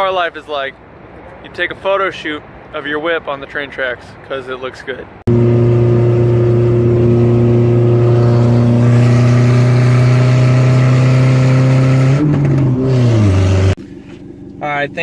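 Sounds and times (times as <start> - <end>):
loud car engine revving: 5.3 - 13.8.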